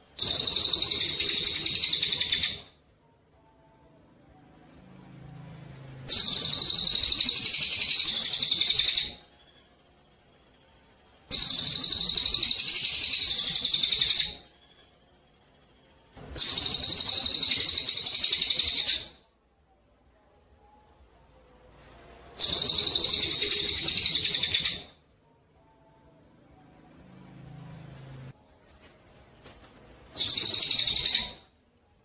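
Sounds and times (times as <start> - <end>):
songbird high-pitched trill: 0.1 - 2.8, 6.1 - 19.2, 22.4 - 25.0, 28.4 - 31.5.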